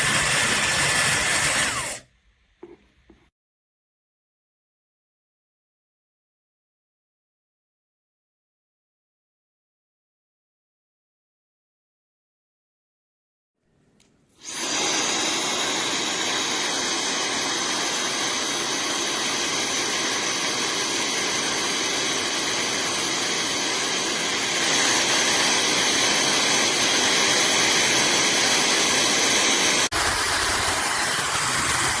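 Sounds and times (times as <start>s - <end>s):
hair dryer running: 0.0s - 2.8s, 14.4s - 32.0s.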